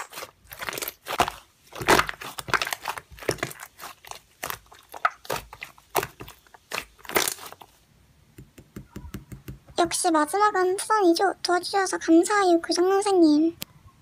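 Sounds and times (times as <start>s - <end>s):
slime squished by hand: 0.0s - 7.8s.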